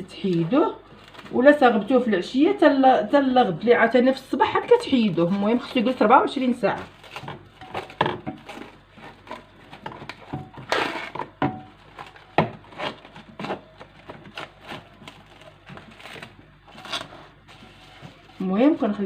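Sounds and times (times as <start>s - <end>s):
rustling: 4.6s - 19.0s.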